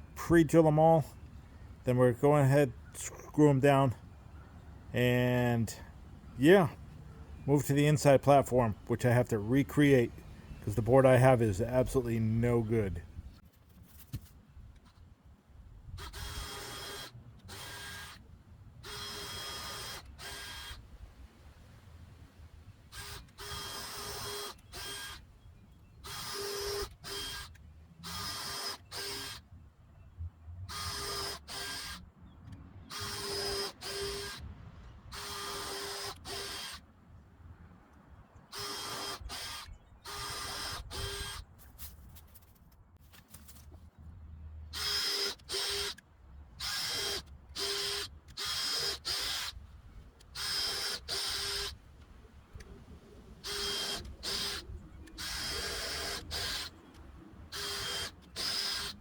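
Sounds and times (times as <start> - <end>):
cordless drill bursts: 16.0 - 18.2, 18.8 - 20.8, 22.9 - 25.2, 26.0 - 29.4, 30.7 - 32.0, 32.8 - 34.4, 35.1 - 36.8, 38.5 - 41.4, 44.7 - 46.0, 46.6 - 49.6, 50.2 - 51.8, 53.4 - 59.0.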